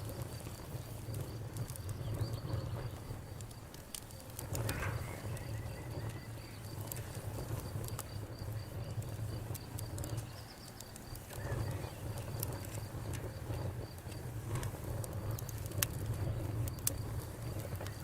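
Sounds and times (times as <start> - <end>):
cricket chirping: 0.0 - 14.0
campfire crackling and popping: 0.0 - 18.0.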